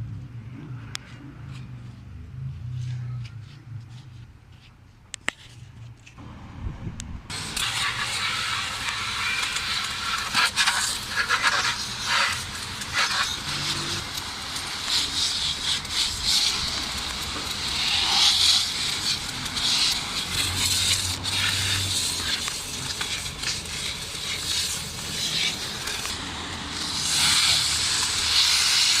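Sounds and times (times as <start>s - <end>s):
pressurised water spray hissing: 7.3s - 29.0s.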